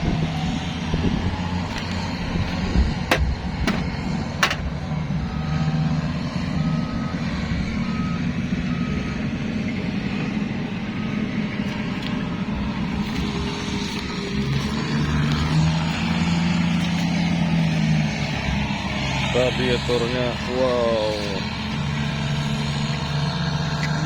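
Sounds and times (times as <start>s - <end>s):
large vehicle engine running: 0.0s - 24.0s
reversing alarm beeping: 5.3s - 11.8s.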